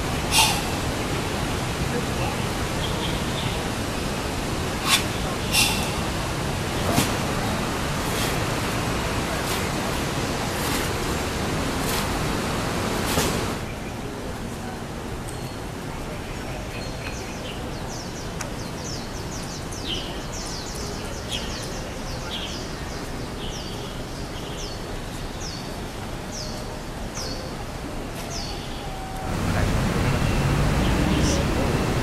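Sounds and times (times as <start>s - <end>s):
bird chirping high downward sweeps: 0.0s - 1.4s
outdoor background noise: 0.0s - 32.0s.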